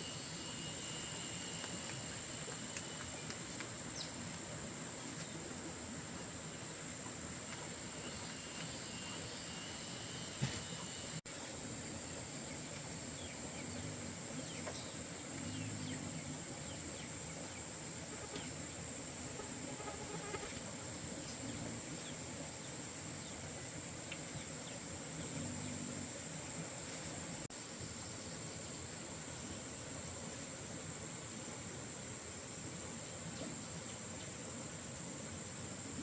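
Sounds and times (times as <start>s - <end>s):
insects droning: 0.0s - 36.0s.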